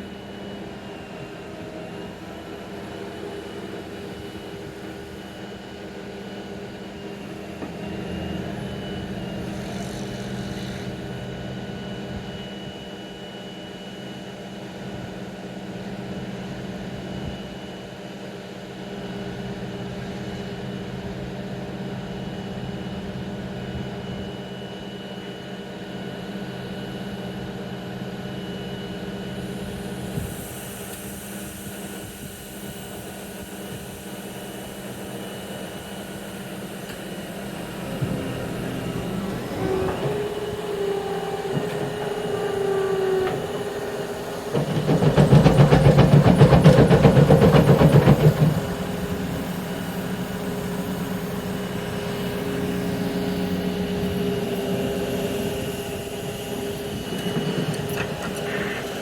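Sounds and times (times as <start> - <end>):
hiss: 9.4 - 11.0
heavy machinery droning: 33.7 - 59.0.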